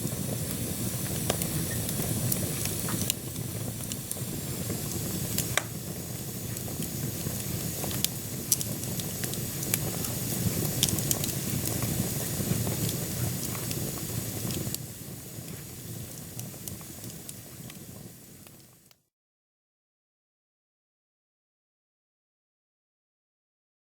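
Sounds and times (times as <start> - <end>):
logs crackling and popping: 0.0 - 18.8
low rumble of fire flames: 0.0 - 18.9.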